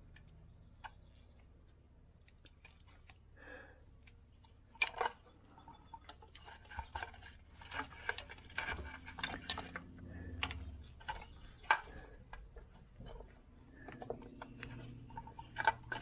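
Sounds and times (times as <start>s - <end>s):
plastic connectors clicking and rattling: 4.8s - 16.0s.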